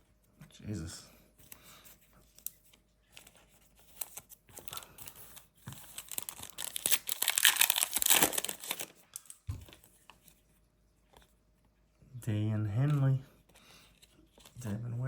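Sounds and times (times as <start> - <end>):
foil wrapper crinkling and tearing: 4.0 - 9.8.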